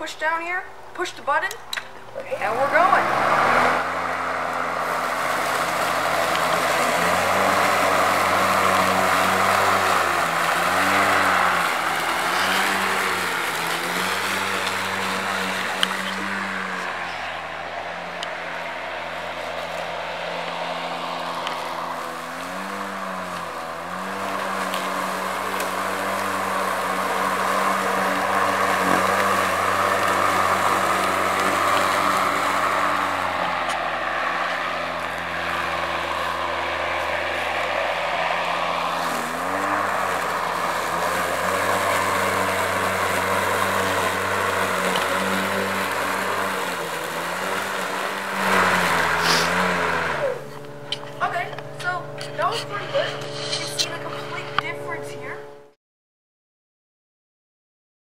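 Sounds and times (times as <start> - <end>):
electric lawnmower cutting grass: 0.0 - 55.8.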